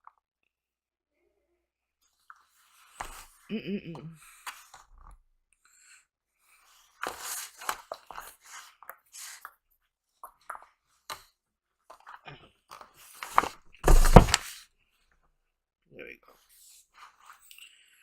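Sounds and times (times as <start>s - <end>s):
rustle and bump: 13.8s - 14.5s.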